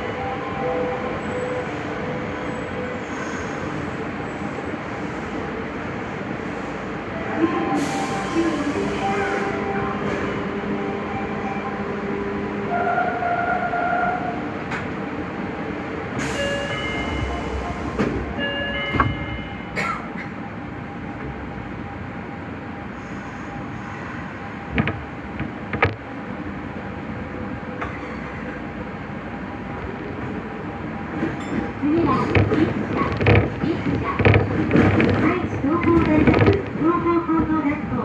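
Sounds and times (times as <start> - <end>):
train motors humming: 0.0 - 38.0
train rolling noise: 0.0 - 38.0
wheel clunks over rail joints: 31.1 - 37.6.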